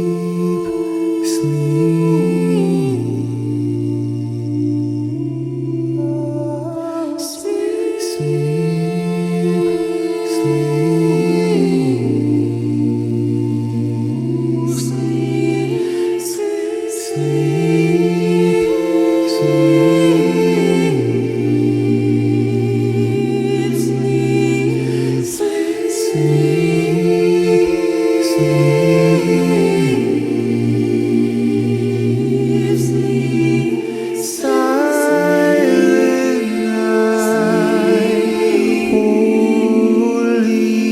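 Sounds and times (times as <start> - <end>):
a cappella group singing: 0.0 - 40.9.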